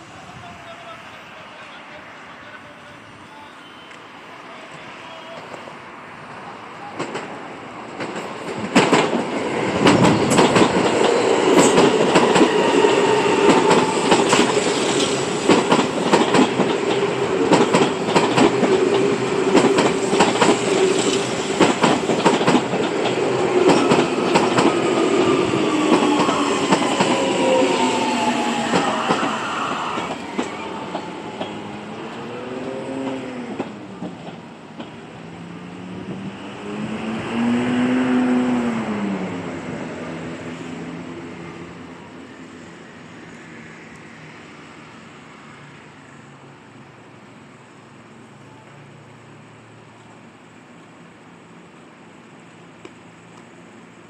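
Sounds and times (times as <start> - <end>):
train motor hum: 9.4 - 40.8
wheels clicking over rail joints: 13.5 - 27.3.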